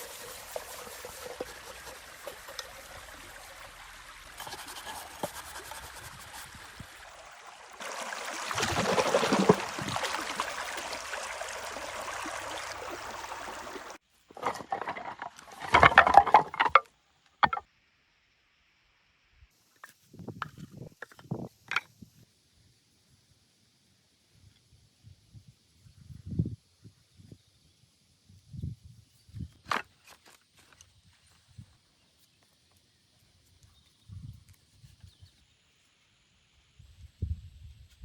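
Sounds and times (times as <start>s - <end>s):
water trickling and splashing: 0.0s - 16.8s.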